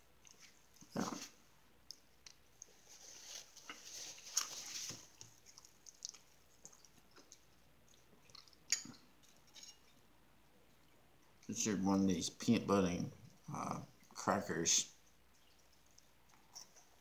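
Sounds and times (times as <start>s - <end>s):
person chewing crackers: 3.4s - 10.0s.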